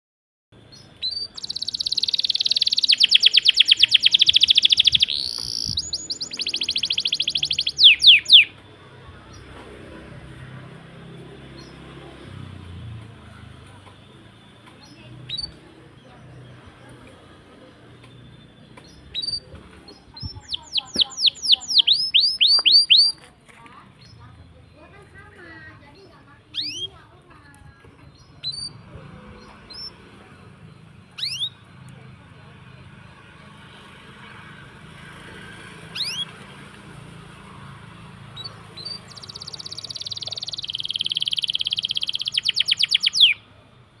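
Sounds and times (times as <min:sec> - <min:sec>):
songbird singing downslurred whistles: 0:00.7 - 0:08.6, 0:14.8 - 0:23.2, 0:26.5 - 0:27.0, 0:29.4 - 0:31.7, 0:35.8 - 0:36.4, 0:38.3 - 0:43.5.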